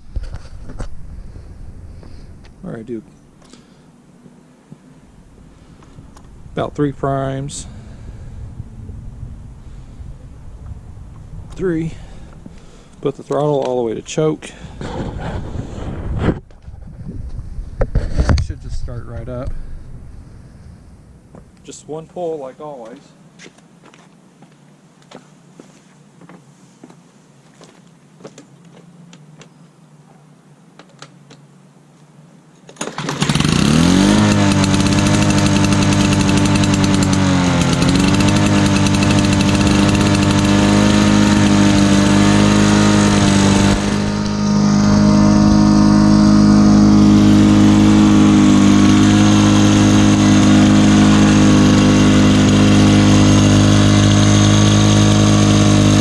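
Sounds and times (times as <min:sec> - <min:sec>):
push mower engine running: 0:32.8 - 0:56.0.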